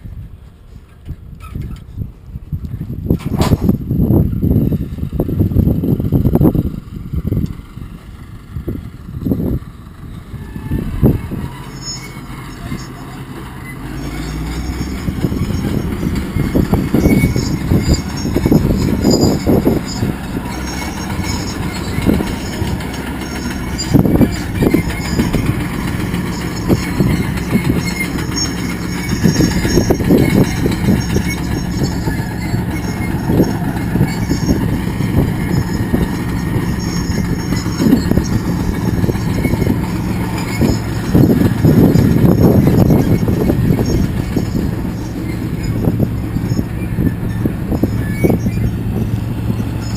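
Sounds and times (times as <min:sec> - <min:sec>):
vehicle engine running: 0:02.9 - 0:49.9
knocks and clatter: 0:03.1 - 0:03.8, 0:11.5 - 0:49.9.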